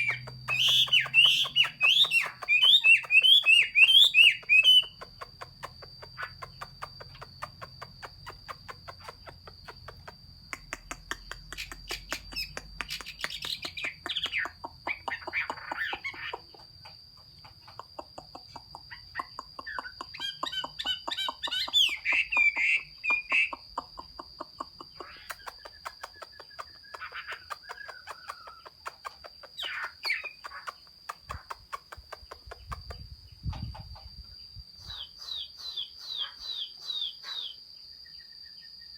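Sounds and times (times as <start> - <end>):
bird singing whistled phrases: 0.0 - 5.0.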